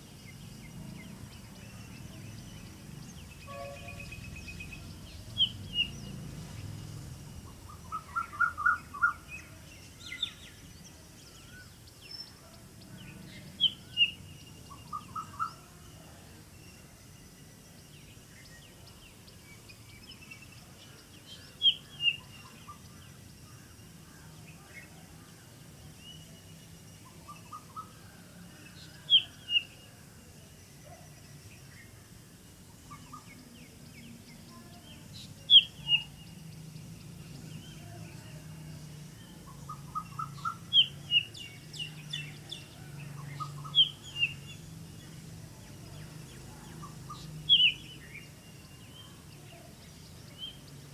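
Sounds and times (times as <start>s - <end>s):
faint bird chirps: 32.6s - 50.9s.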